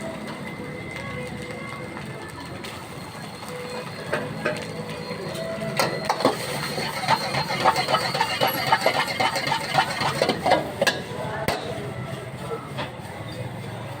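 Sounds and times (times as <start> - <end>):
metal spatula scraping a pan: 5.8 - 11.8.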